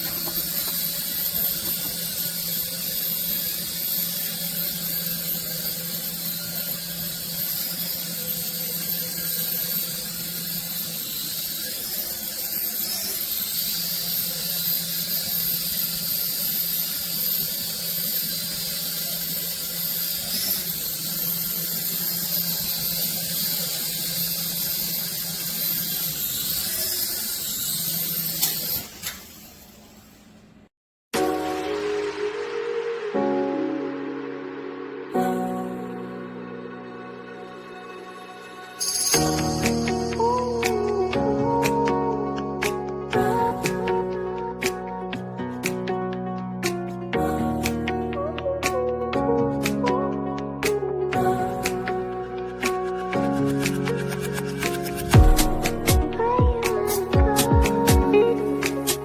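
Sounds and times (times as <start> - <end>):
toy helicopter rotors whirring: 0.0 - 30.2, 50.6 - 59.0.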